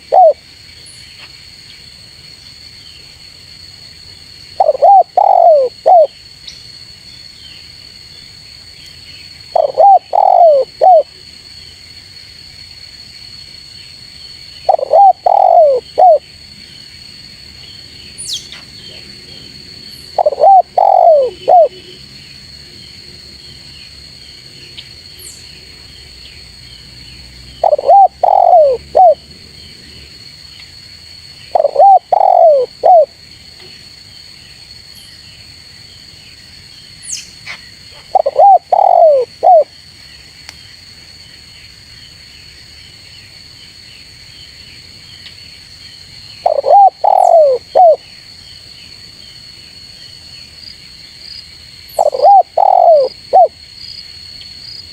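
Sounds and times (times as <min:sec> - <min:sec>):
dove cooing: 0:00.0 - 0:00.4, 0:04.6 - 0:06.1, 0:09.5 - 0:11.1, 0:14.6 - 0:16.2, 0:20.2 - 0:21.9, 0:27.6 - 0:29.2, 0:31.5 - 0:33.1, 0:38.0 - 0:39.7, 0:46.4 - 0:48.0, 0:52.0 - 0:53.5.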